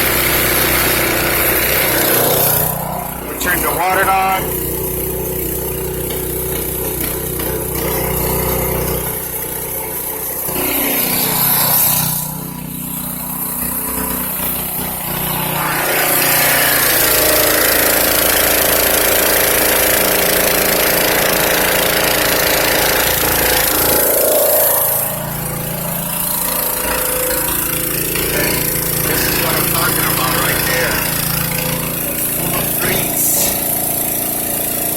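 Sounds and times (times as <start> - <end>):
high-pressure water jetting machine: 0.0 - 34.9.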